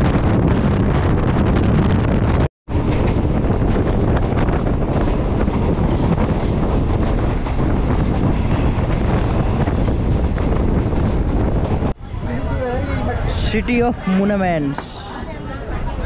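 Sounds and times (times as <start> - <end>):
train wheels rumbling and rattling: 0.0 - 12.0.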